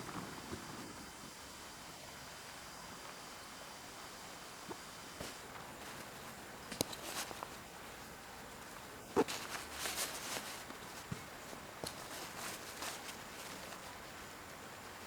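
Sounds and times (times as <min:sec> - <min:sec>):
rustling: 0:04.7 - 0:15.0.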